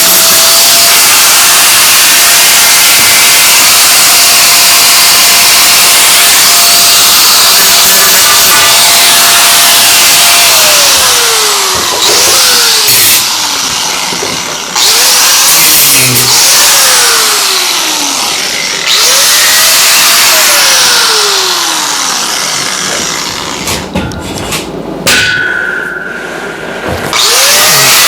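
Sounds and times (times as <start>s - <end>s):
angle grinder cutting metal: 0.0s - 23.9s, 25.2s - 28.0s
grinder disc winding down: 7.8s - 23.7s, 27.0s - 28.0s.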